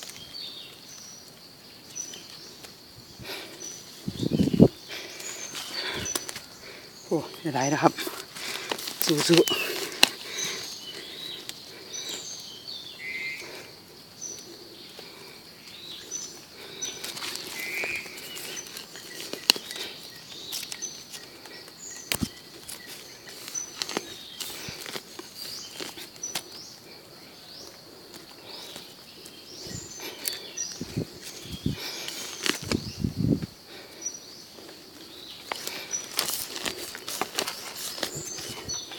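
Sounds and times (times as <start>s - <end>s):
birds chirping: 0.0s - 38.9s
sharp clicks and rustles: 17.0s - 26.5s, 35.4s - 38.9s.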